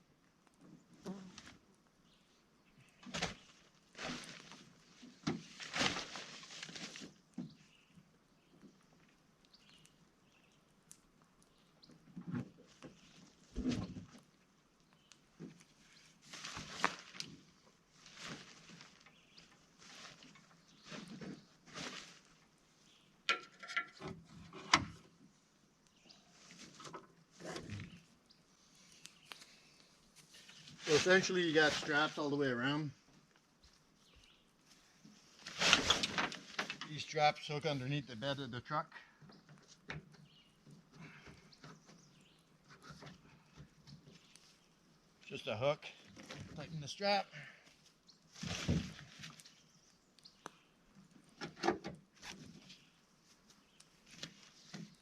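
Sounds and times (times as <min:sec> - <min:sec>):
tent fabric rustling: 0:03.1 - 0:07.2, 0:16.1 - 0:22.4, 0:30.2 - 0:32.3, 0:35.2 - 0:36.8, 0:48.3 - 0:49.8.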